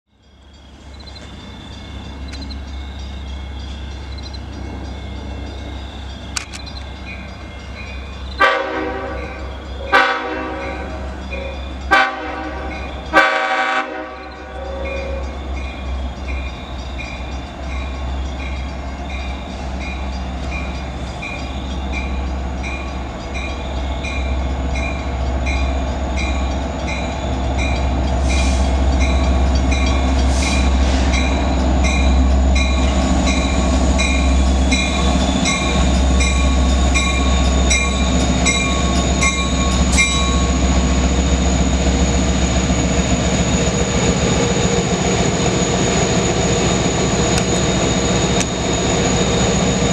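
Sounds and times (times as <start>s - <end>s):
diesel locomotive rumbling: 0.1s - 49.9s
bell ringing: 31.1s - 41.8s.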